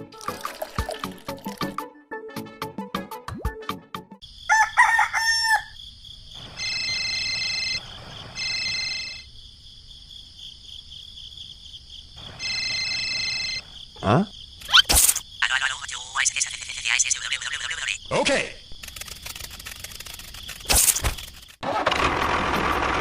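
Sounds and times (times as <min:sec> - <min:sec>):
rooster crowing: 0:04.4 - 0:05.8.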